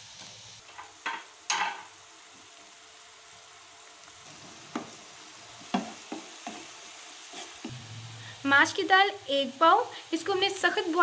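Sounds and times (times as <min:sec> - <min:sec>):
vegetables sizzling in oil: 0:00.0 - 0:11.0
wooden spatula scraping pan: 0:05.6 - 0:07.7.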